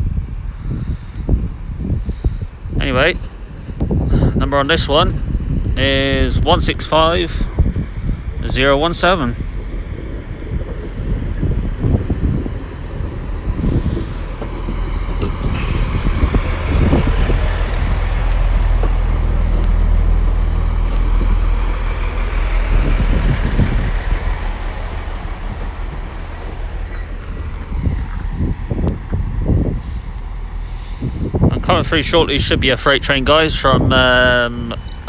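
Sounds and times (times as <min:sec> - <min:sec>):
diesel train rumbling: 0:00.0 - 0:35.0.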